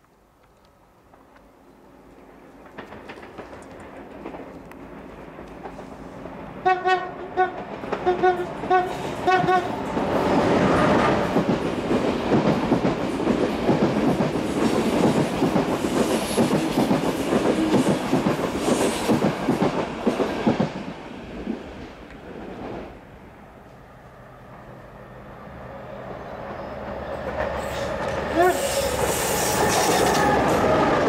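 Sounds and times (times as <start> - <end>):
train wheels clattering over rails: 2.2 - 6.4, 7.5 - 22.9, 26.4 - 31.0
locomotive horn toots: 6.6 - 9.8, 28.3 - 30.7.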